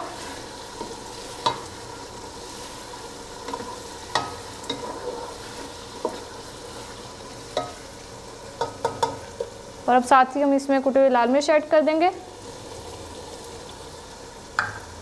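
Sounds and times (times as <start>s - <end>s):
sauce sizzling in a pot: 0.0s - 15.0s
wooden spatula stirring: 2.4s - 7.8s
spatula knocking against pot: 8.6s - 9.2s.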